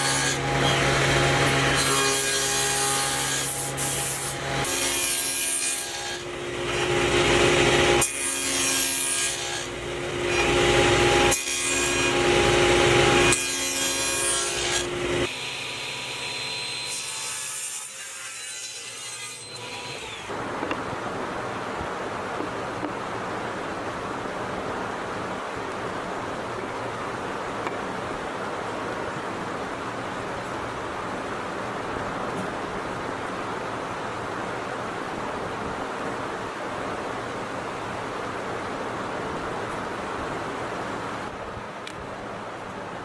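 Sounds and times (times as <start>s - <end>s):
woodworking tools cutting wood: 0.0s - 20.8s.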